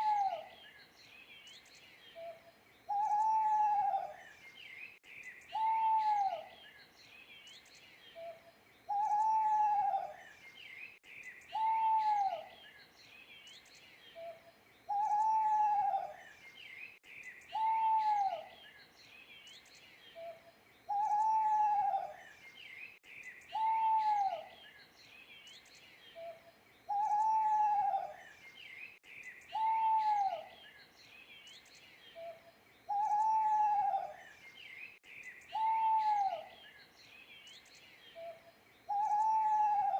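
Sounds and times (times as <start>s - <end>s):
owl hooting: 0.0s - 0.5s, 2.2s - 4.2s, 5.5s - 6.5s, 8.2s - 10.2s, 11.5s - 12.5s, 14.2s - 16.2s, 17.5s - 18.5s, 20.2s - 22.2s, 23.5s - 24.5s, 26.2s - 28.2s, 29.5s - 30.6s, 32.2s - 34.2s, 35.5s - 36.6s, 38.2s - 39.9s
small birds chirping: 0.0s - 39.9s.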